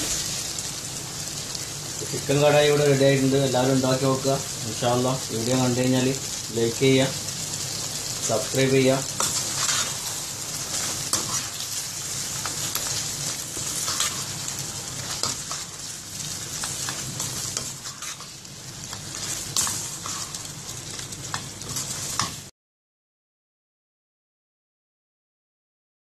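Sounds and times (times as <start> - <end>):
curry sizzling in a pan: 0.0 - 22.5
spatula scraping and knocking pan: 9.2 - 11.6, 12.4 - 14.4, 16.5 - 22.4.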